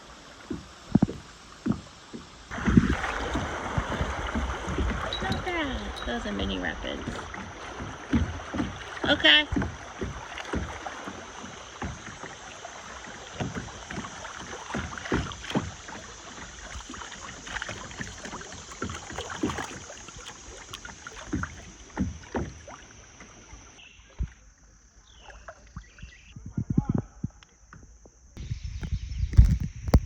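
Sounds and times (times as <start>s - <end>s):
river water rushing and splashing: 0.0s - 23.8s
paddle strokes splashing: 0.0s - 26.4s.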